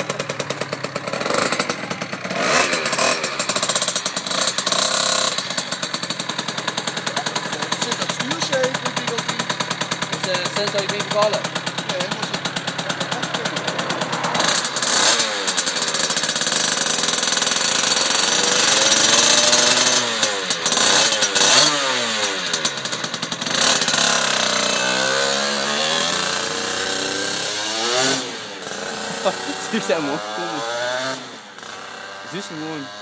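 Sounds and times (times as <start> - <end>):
two-stroke motorcycle engine revving: 0.0 - 33.0.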